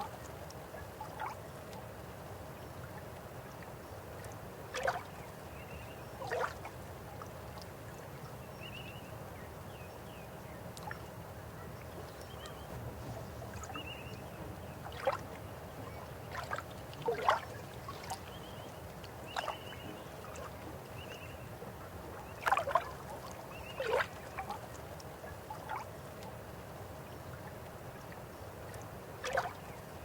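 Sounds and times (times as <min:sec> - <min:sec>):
river water running: 0:00.0 - 0:30.0
water gurgles and splashes: 0:04.6 - 0:05.2, 0:06.2 - 0:07.6, 0:12.1 - 0:26.4, 0:28.7 - 0:30.0.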